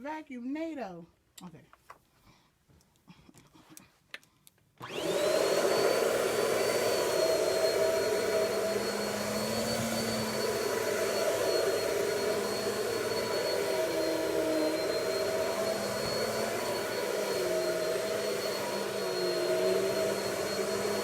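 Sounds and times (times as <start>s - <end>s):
vacuum cleaner motor whining: 4.8s - 21.0s.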